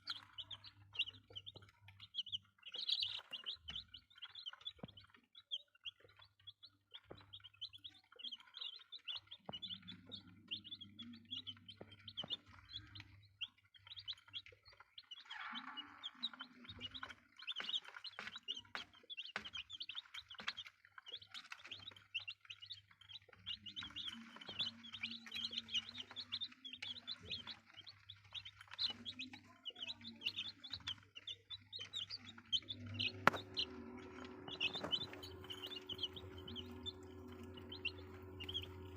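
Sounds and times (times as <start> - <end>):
chicks peeping: 0.0 - 38.9
faint low hum: 23.4 - 38.9.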